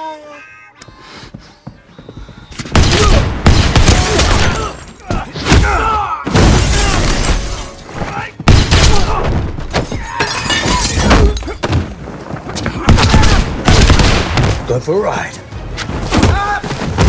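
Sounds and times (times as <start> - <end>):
gunfire: 2.6 - 4.7, 12.9 - 14.7
punch and body impacts: 12.8 - 14.7, 16.0 - 17.0.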